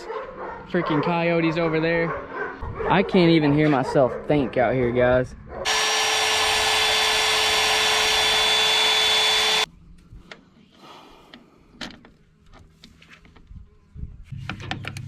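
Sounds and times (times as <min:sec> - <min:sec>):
power drill whining: 0:05.7 - 0:09.7.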